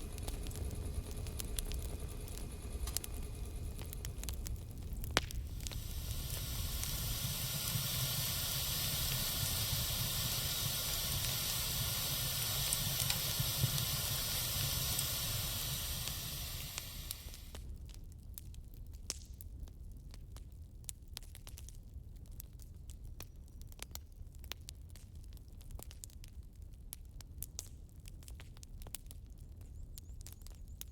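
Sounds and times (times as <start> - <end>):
low rumble: 0.0 - 17.6
wood fire hissing: 0.0 - 17.7
faint fire crackles: 0.0 - 30.9.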